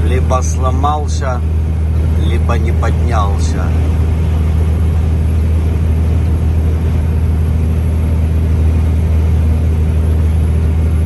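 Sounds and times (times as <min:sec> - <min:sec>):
diesel truck engine droning: 0:00.0 - 0:11.0
road noise: 0:00.0 - 0:11.0.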